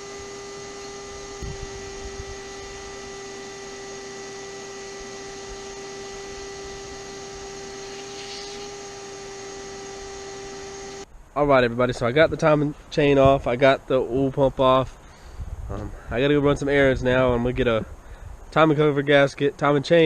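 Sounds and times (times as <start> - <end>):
steady hum: 0.0 - 11.1.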